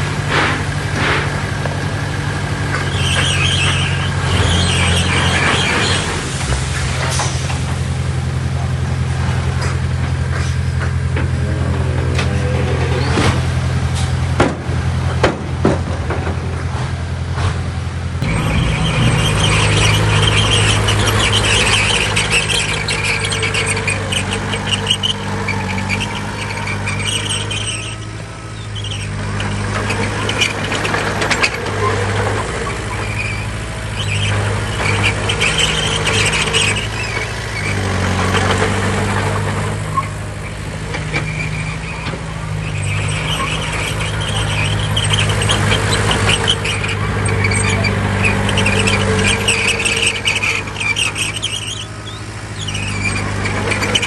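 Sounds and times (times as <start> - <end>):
heavy diesel machine running: 0.0 - 54.0
high squeal: 2.2 - 8.3, 18.2 - 54.0.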